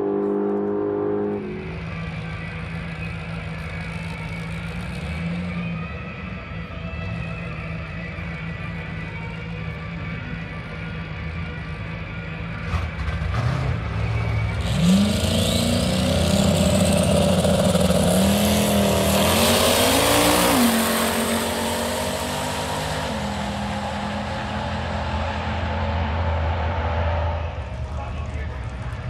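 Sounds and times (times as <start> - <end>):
racing car engine revving: 0.0 - 3.0, 12.6 - 29.0.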